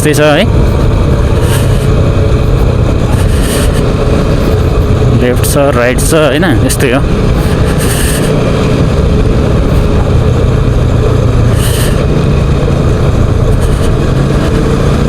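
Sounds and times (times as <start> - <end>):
hissy wind gusts: 0.0 - 15.0
motorcycle engine running: 0.0 - 15.0
wind rush on microphone: 0.0 - 15.0.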